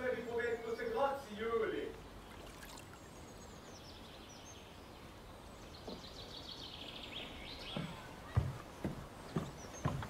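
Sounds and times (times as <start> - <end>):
faint outdoor background noise: 0.0 - 10.0
songbird trilling: 2.1 - 10.0.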